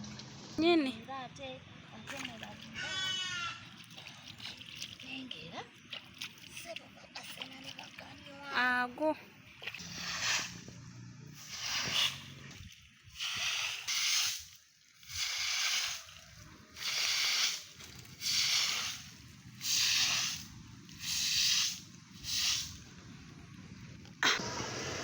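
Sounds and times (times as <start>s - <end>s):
rough scraping strokes: 9.8s - 12.6s.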